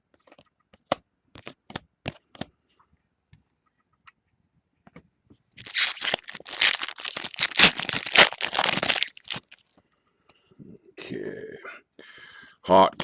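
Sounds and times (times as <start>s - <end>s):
foil wrapper crinkling and tearing: 5.6s - 9.6s.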